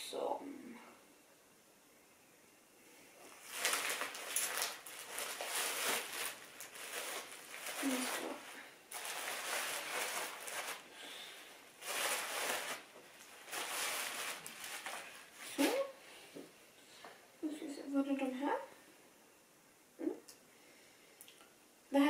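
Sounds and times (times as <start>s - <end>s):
plastic bag rustling: 3.2s - 16.0s.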